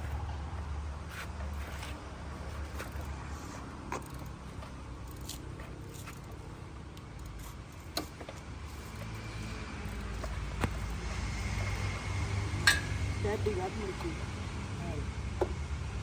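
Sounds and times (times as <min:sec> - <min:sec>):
hand tools clinking on metal: 0:12.6 - 0:13.0.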